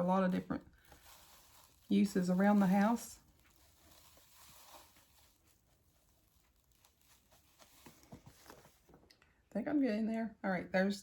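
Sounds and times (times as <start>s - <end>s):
powder scooped and poured: 0.0s - 8.9s.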